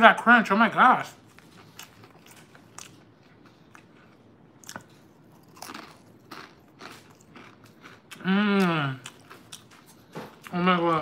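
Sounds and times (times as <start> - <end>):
close-mouthed chewing: 1.2 - 10.6
chip crunches: 1.6 - 10.0.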